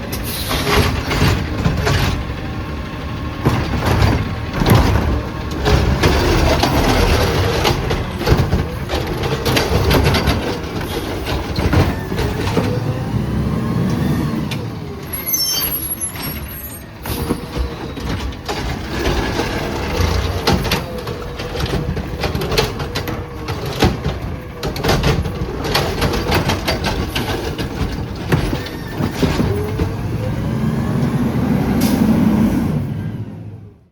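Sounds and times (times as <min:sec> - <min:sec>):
diesel engine revving: 0:00.0 - 0:33.9
air brakes hissing: 0:00.1 - 0:00.9, 0:31.8 - 0:33.0
hydraulic whine: 0:03.5 - 0:33.8.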